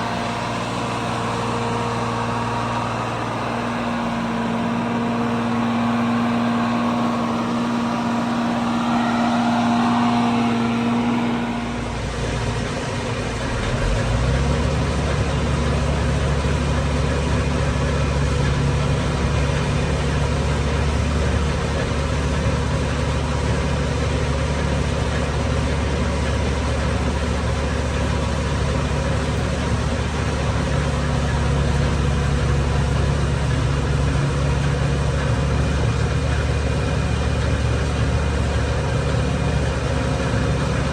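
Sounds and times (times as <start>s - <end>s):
higher hum: 0.0s - 13.5s
deep steady drone: 0.0s - 40.9s
diesel farm machinery running: 0.0s - 40.9s.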